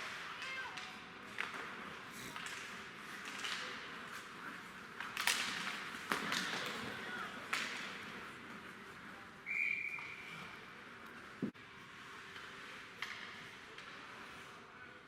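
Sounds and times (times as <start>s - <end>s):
sharp cracks of hockey sticks: 0.0s - 4.3s, 4.9s - 8.1s, 13.0s - 14.0s.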